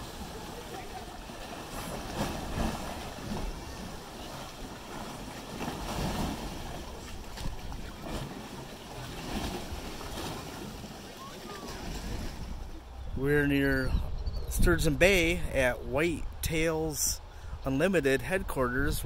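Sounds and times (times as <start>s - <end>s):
water lapping against cliffs: 0.0s - 13.0s
wind buffeting microphone: 11.7s - 17.7s.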